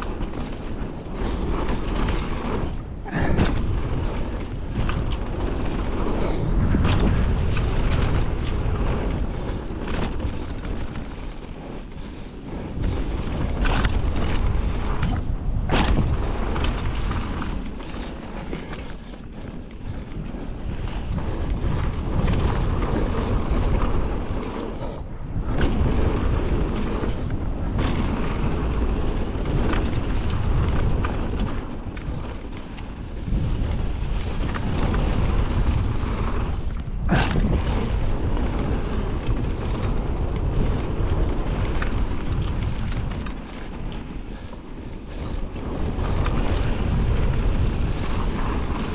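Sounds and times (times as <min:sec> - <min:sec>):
bike rattling knocks: 0:00.0 - 0:11.1, 0:12.8 - 0:43.7
tyre rumble: 0:00.0 - 0:48.9
wind buffeting microphone: 0:00.0 - 0:48.9.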